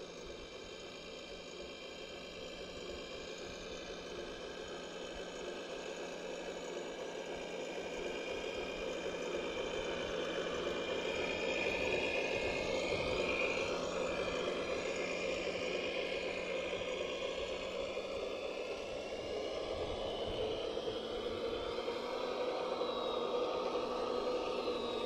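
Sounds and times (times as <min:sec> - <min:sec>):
electric motors whirring and whining: 0:00.0 - 0:25.0.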